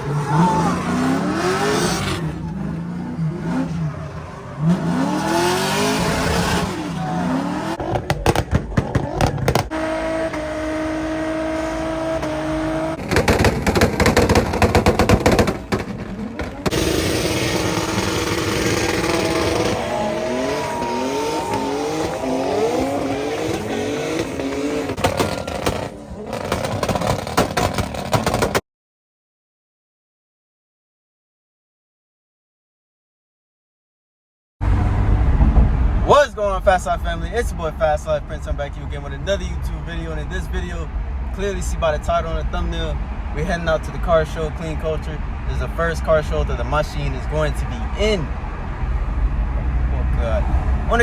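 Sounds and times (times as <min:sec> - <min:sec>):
car engines revving: 0:00.0 - 0:28.6, 0:34.6 - 0:51.0
exhaust pops and crackles: 0:07.8 - 0:09.8, 0:13.0 - 0:19.9, 0:22.8 - 0:28.6.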